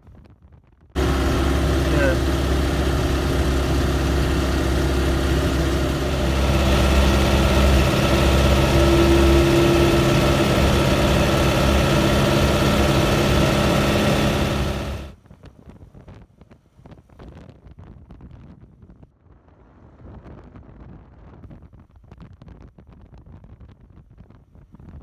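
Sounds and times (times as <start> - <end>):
car engine running: 1.0 - 15.2.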